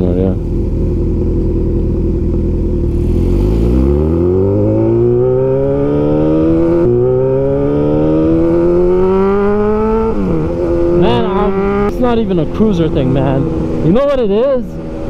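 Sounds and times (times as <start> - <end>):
motorcycle engine idling: 0.0 - 3.0
motorcycle engine revving up: 0.0 - 15.0.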